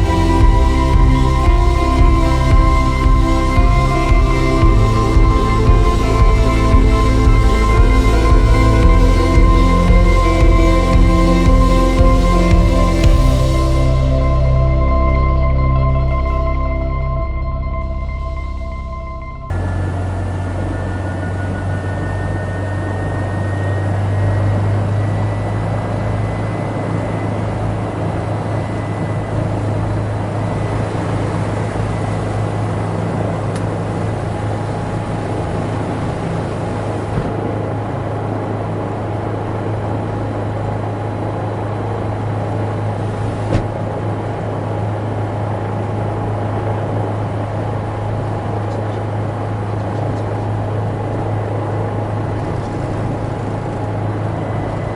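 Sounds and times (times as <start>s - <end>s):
faint high whine: 0.0s - 54.9s.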